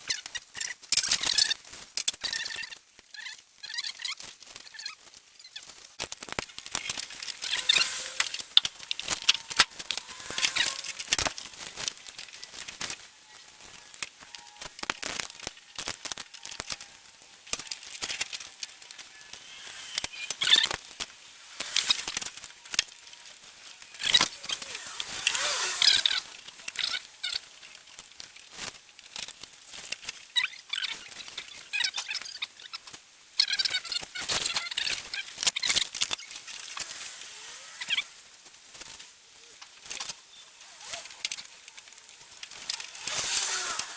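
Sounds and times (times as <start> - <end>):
hand tools and metal parts clinking: 6.0 - 30.1, 39.7 - 43.9.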